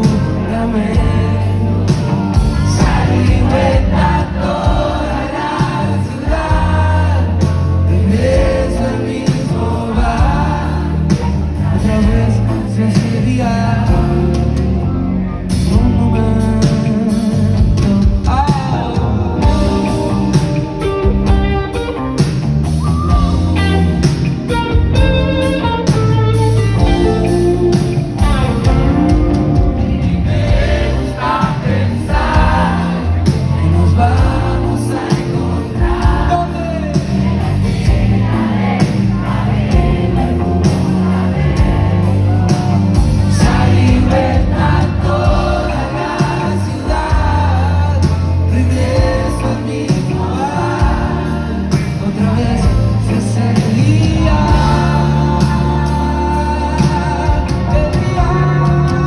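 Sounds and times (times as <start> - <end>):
live rock band: 0.0 - 59.0
person singing: 26.4 - 59.0.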